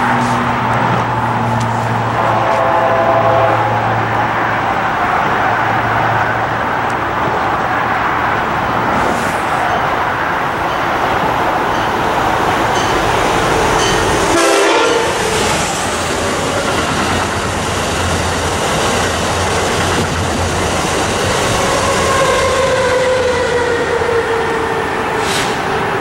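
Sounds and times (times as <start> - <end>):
train wheels rushing on rails: 0.0 - 26.0
train horn: 2.0 - 4.1, 12.8 - 15.7, 21.4 - 25.7.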